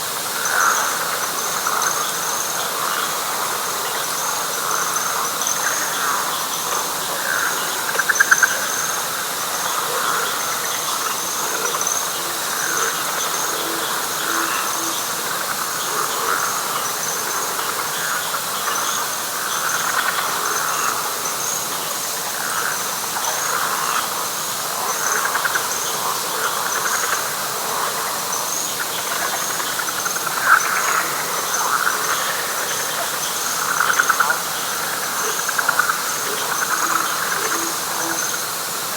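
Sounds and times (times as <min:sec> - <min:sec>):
frogs calling: 0:00.0 - 0:38.9
high chirping insect trill: 0:00.1 - 0:38.9.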